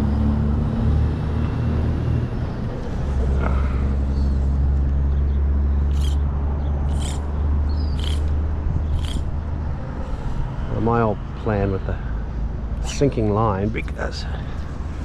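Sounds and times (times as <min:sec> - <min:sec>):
low rumble of road traffic: 0:00.0 - 0:15.0
short hissing swishes: 0:06.9 - 0:07.2, 0:08.0 - 0:08.3, 0:08.9 - 0:09.3.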